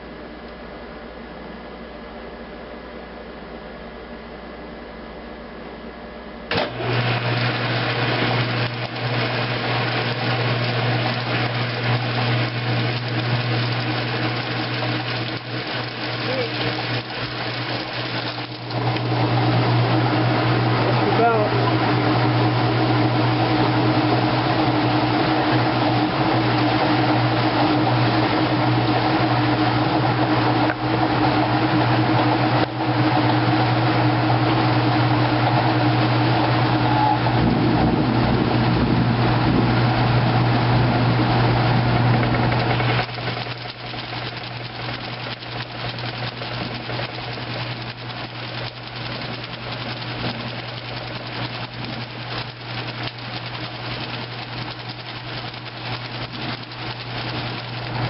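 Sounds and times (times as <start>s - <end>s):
washing machine motor hum: 5.8s - 58.0s
water splashing: 7.8s - 18.9s.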